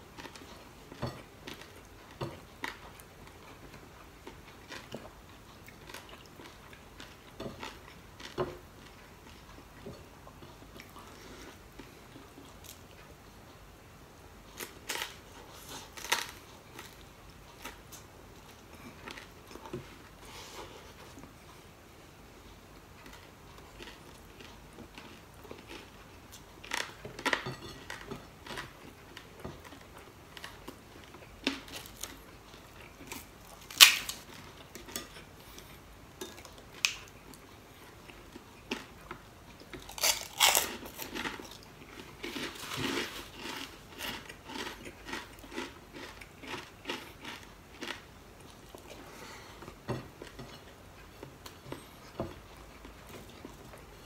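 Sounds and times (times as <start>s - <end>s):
crunching and chewing food: 0.0s - 13.4s, 14.4s - 21.6s, 22.4s - 54.0s.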